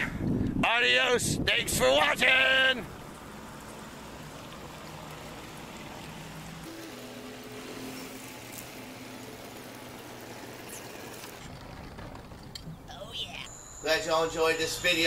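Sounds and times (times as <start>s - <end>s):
wind: 0.0s - 15.0s
rushing water: 2.2s - 11.4s
boat motor running: 2.3s - 14.2s.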